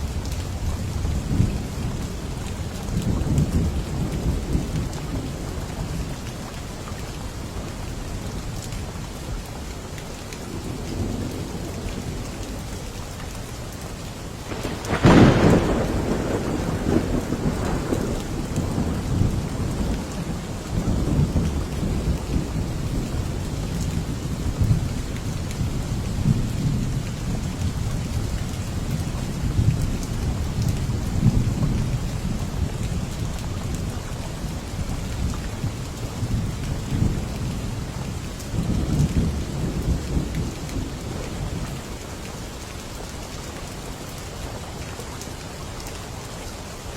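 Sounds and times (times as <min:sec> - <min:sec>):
heavy rain: 0:00.0 - 0:46.9
low rolling thunder rumble: 0:14.4 - 0:42.0
thunder clap: 0:14.5 - 0:20.2.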